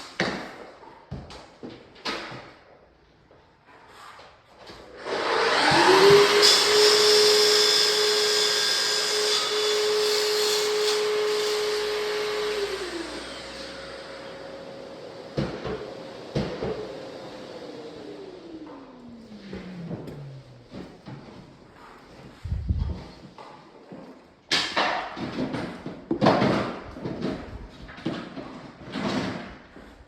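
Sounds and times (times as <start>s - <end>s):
electric motor whining: 5.2s - 7.1s.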